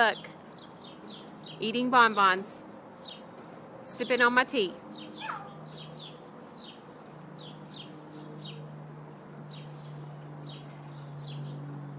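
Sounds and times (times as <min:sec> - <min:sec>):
small birds chirping: 0:00.0 - 0:08.7, 0:09.5 - 0:11.9.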